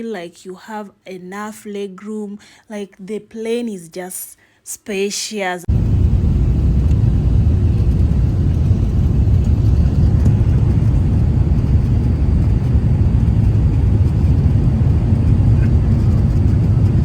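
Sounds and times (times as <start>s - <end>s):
airliner cabin rumble: 5.7s - 17.0s.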